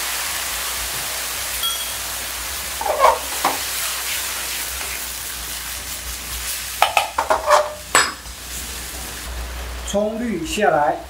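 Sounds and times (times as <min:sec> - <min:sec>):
fish sizzling in a wok: 0:00.0 - 0:11.0
wok ladle scraping and knocking: 0:02.8 - 0:03.7, 0:06.8 - 0:08.2.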